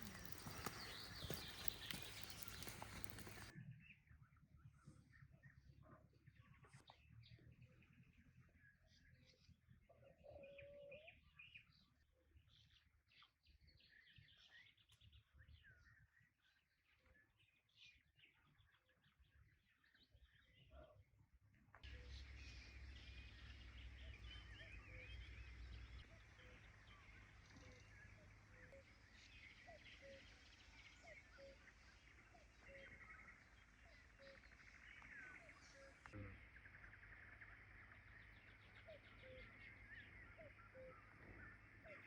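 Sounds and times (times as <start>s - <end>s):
soft low rumble: 0.0s - 4.8s
small birds chirping: 0.0s - 21.0s, 21.8s - 42.0s.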